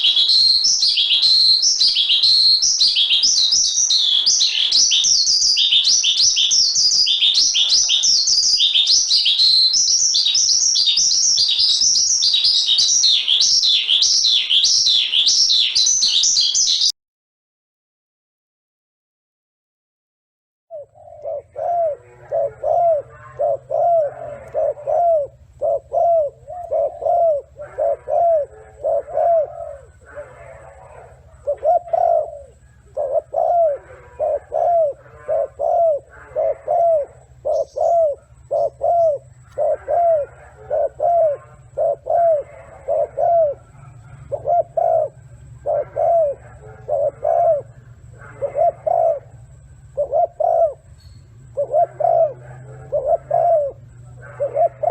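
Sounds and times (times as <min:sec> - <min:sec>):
steady low hum: 0:20.7 - 0:54.9.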